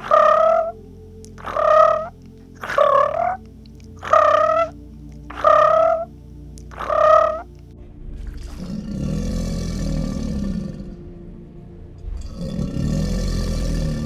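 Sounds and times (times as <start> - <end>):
low growling roar: 0.0 - 0.8, 1.4 - 3.4, 4.0 - 6.1, 6.7 - 7.5, 8.1 - 11.2, 12.0 - 14.0
short high animal call: 4.0 - 6.1, 6.7 - 7.5.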